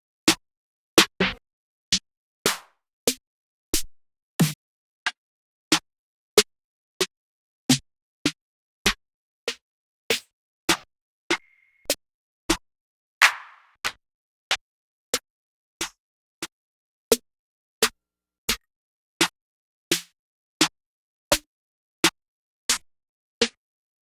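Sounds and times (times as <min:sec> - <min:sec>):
trap drum hits: 0:13.2 - 0:13.7.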